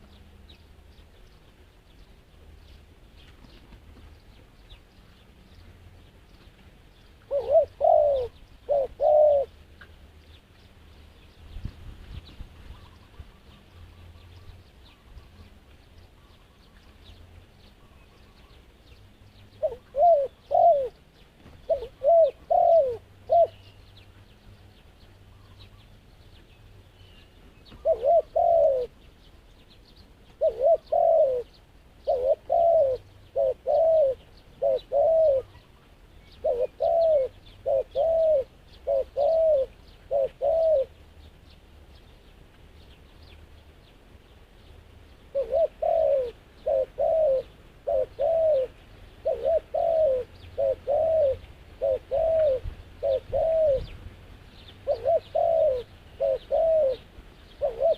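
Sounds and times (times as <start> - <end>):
dove cooing: 7.2 - 9.6, 19.6 - 23.8, 27.6 - 29.1, 30.4 - 35.7, 36.4 - 41.0, 45.3 - 54.0, 54.8 - 57.9.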